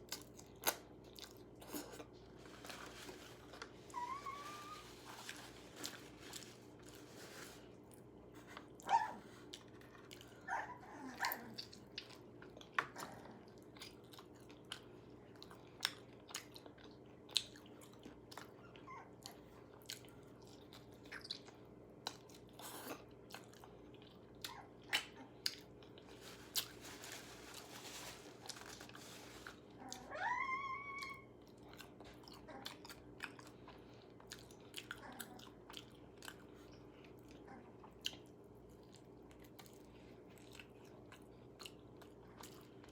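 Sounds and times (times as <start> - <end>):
crunching fried chicken: 0.0 - 8.2, 8.8 - 42.9
dog whining: 3.8 - 5.1, 8.8 - 9.4, 10.3 - 11.6, 18.5 - 19.4, 29.8 - 31.4.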